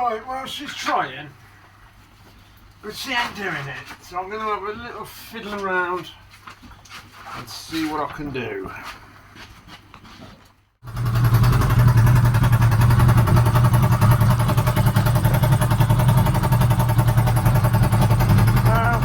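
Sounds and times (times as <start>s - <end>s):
motorcycle engine running: 10.8s - 19.0s.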